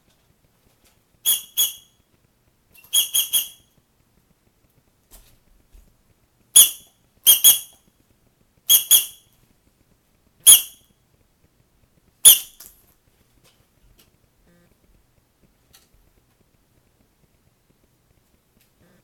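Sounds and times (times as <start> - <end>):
short high-pitched squeaks: 1.2 - 2.0, 2.8 - 3.7, 6.6 - 7.8, 8.7 - 9.2, 10.5 - 10.8, 12.2 - 12.7.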